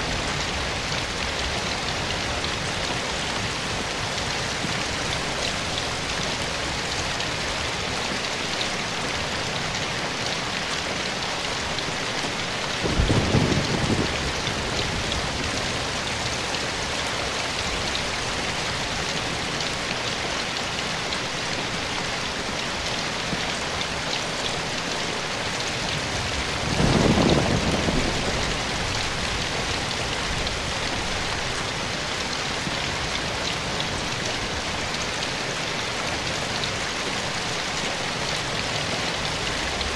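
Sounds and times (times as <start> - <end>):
rain falling on foliage: 0.0 - 39.9
low rumble of thunder: 12.8 - 16.0, 26.1 - 31.0.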